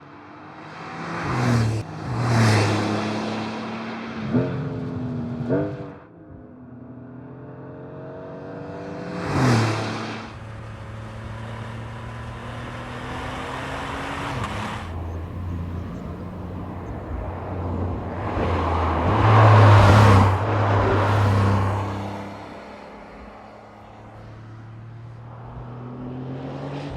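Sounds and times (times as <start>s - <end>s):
sports car engine revving: 7.0s - 22.8s.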